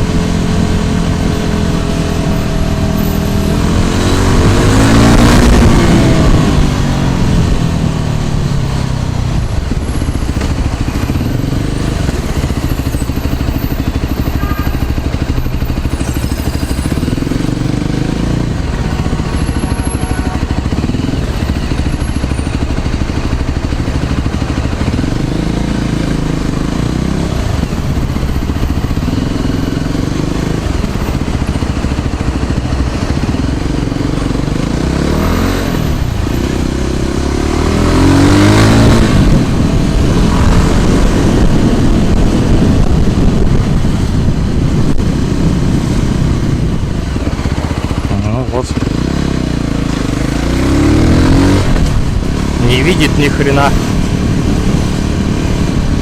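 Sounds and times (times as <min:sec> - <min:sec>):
road traffic rushing: 0:00.0 - 0:56.0
scooter engine rumble: 0:00.0 - 0:56.0
vehicle passing close: 0:37.3 - 0:49.2.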